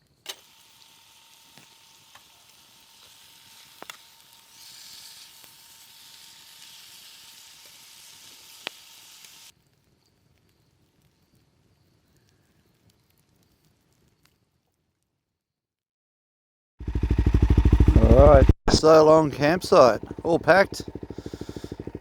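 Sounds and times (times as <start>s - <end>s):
sizzling hiss: 0.0s - 11.3s
sharp crackles: 0.0s - 15.1s, 18.7s - 22.0s.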